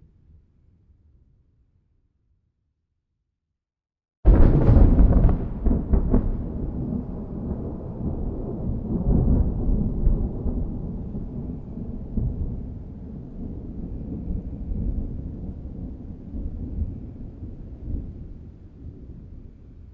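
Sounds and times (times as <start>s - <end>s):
thunder crack and rumble: 4.3s - 19.9s.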